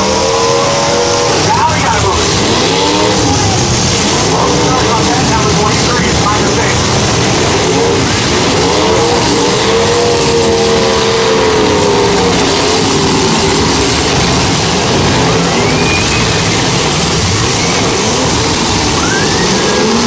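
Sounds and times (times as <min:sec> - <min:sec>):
car engines revving: 0:00.0 - 0:20.0.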